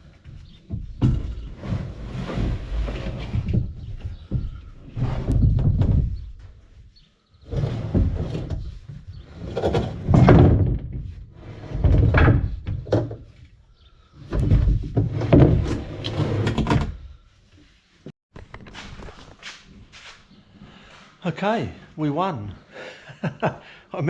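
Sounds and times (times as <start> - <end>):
plastic tank bumping and scraping: 0.2 - 6.6, 7.6 - 13.4, 14.2 - 17.0.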